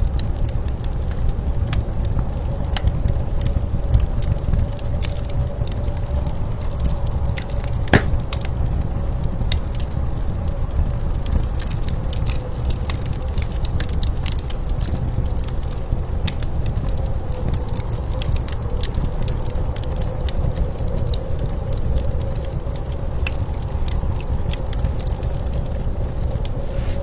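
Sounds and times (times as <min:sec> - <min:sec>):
wood fire crackling and popping: 0:07.9 - 0:08.5, 0:15.8 - 0:17.1.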